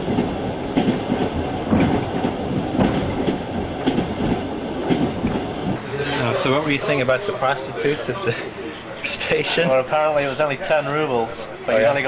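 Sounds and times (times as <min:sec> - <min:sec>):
wheels clacking over rail joints: 0:00.0 - 0:06.2
train carriage rumbling: 0:00.0 - 0:12.0.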